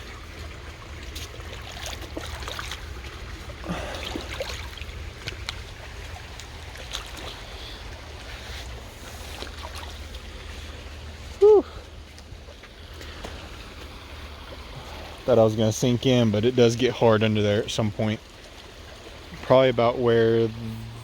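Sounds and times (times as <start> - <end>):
running creek water: 0.0 - 21.0
steady low rumble: 19.2 - 21.0.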